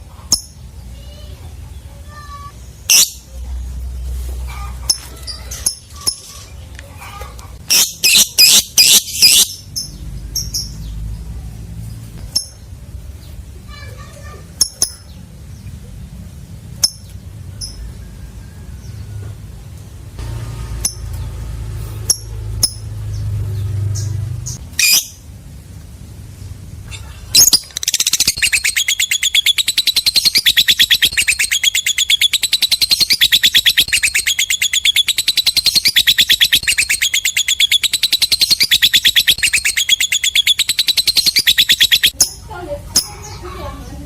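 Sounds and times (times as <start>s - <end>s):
lovebird rapid shrill chatter: 2.8s - 3.3s, 4.5s - 6.6s, 7.6s - 9.7s, 24.6s - 25.2s, 27.4s - 43.3s.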